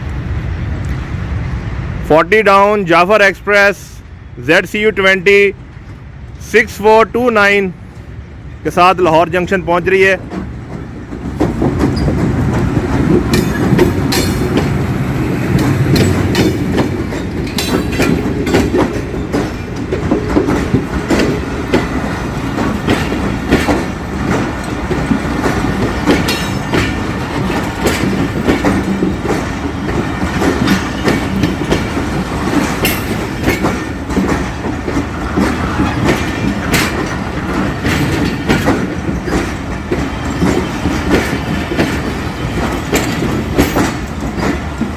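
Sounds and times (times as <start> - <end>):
train rumbling: 0.0 - 44.9
wheels clicking over rail joints: 10.0 - 44.9.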